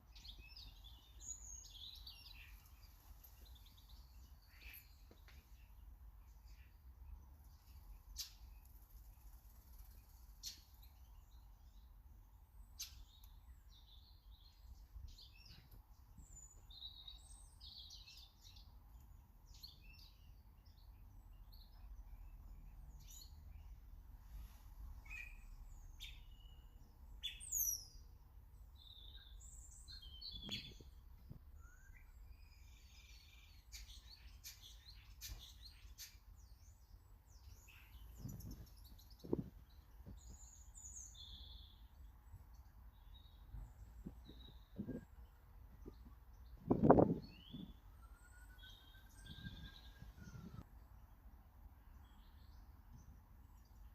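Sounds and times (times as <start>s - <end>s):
small birds chirping: 0.0s - 53.9s
loud sweeping bird call: 46.8s - 50.6s.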